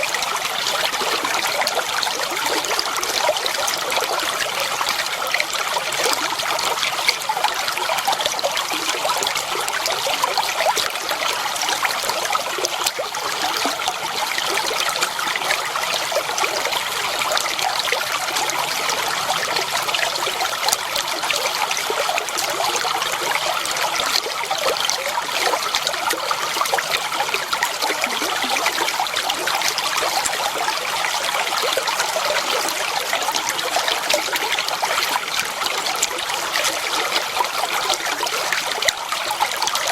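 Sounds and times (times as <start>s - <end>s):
shallow water trickling and splashing: 0.0s - 39.9s.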